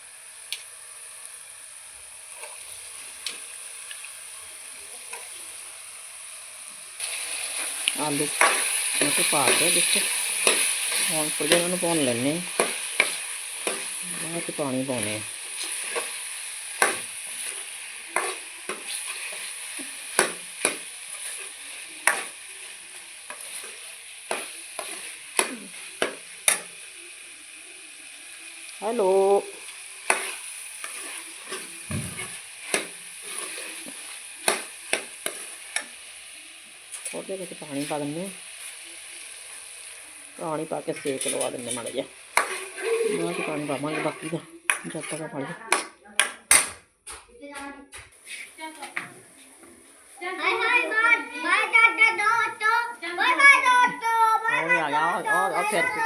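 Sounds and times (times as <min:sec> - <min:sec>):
vegetables sizzling in a pan: 0:00.0 - 0:46.7, 0:48.2 - 0:56.0
spoon scraping a pan: 0:07.0 - 0:26.8, 0:29.6 - 0:36.0, 0:40.8 - 0:45.9.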